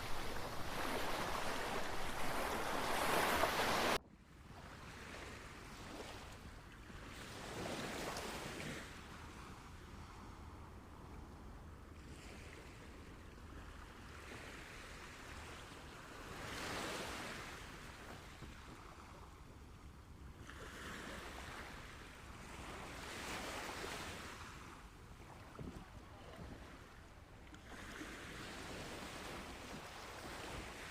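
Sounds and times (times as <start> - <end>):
sea waves breaking on shore: 0.0 - 4.0, 20.4 - 30.9.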